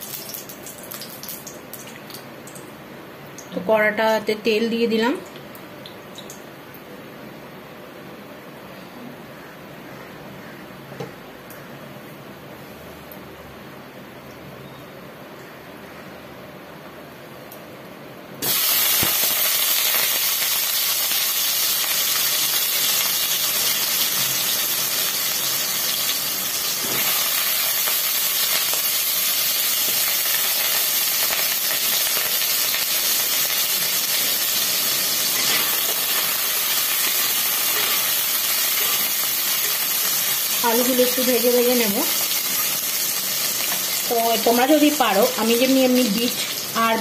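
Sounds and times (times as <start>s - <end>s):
potatoes frying in hot oil: 0.0s - 2.8s, 18.4s - 47.0s.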